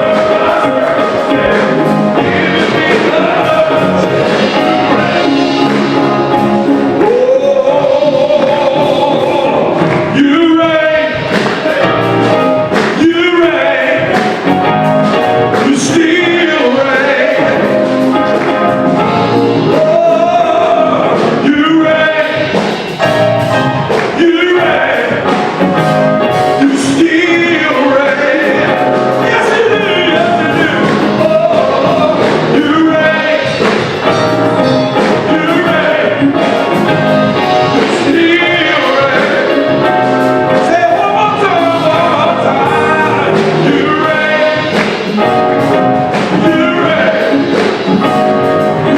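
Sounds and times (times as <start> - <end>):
voices singing over live band: 0.0 - 48.9.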